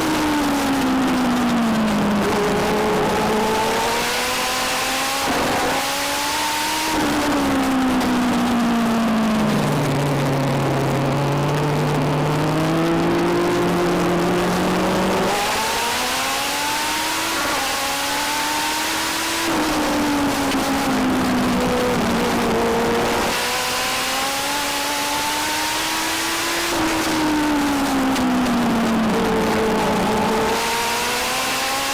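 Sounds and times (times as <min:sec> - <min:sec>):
other car engine: 0:00.0 - 0:31.9
race car engine revving: 0:00.0 - 0:31.9.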